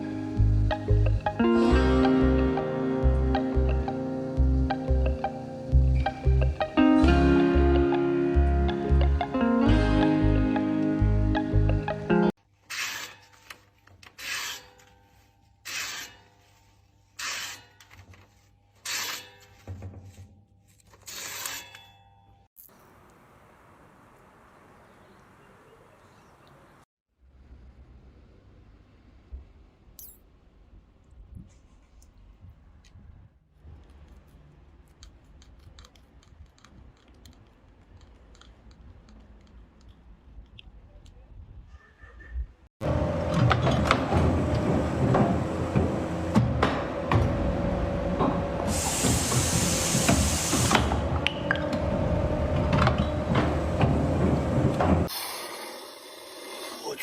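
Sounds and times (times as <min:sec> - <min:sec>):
rasping scraping strokes: 0:14.1 - 0:21.8
small clicks and crackles: 0:33.6 - 0:41.2.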